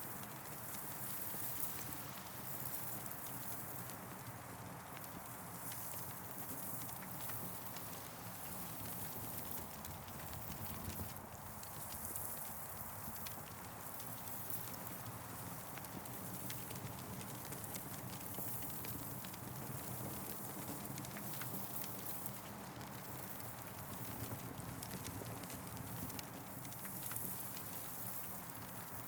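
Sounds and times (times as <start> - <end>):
campfire crackling and popping: 12.7 - 29.0.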